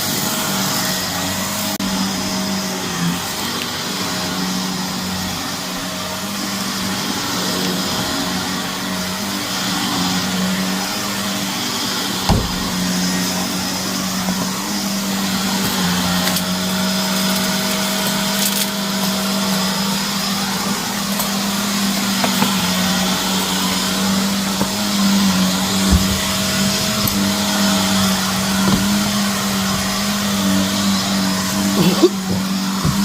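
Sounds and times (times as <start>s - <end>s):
vacuum cleaner running: 0.0s - 33.0s
sharp thump: 12.3s - 12.9s.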